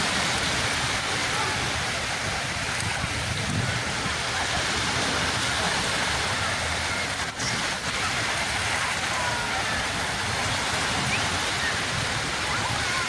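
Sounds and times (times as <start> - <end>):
sea waves washing on shore: 0.0 - 13.0.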